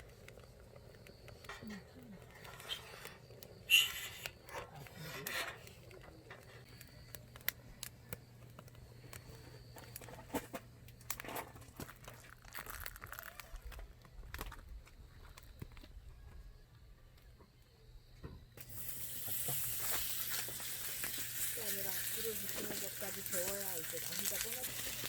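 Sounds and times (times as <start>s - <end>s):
rustling and crinkling: 4.3s - 16.4s.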